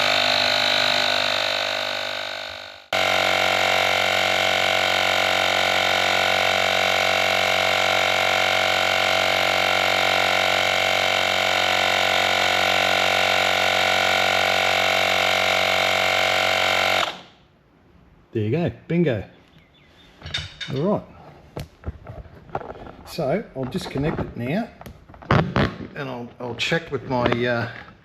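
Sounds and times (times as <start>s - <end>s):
tyre inflator compressor droning: 0.0s - 17.4s.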